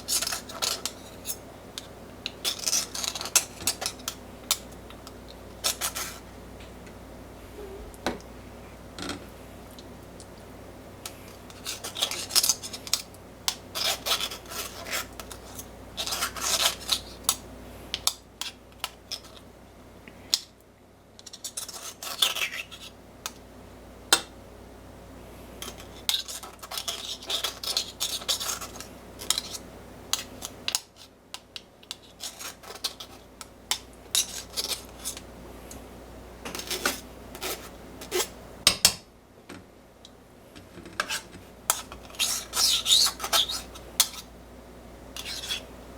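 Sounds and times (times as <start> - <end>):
metal utensils scraping kitchenware: 0.0 - 4.6, 5.6 - 6.2, 11.3 - 13.0, 25.6 - 30.6, 34.1 - 35.2, 36.5 - 38.3, 40.9 - 44.3, 45.2 - 45.7.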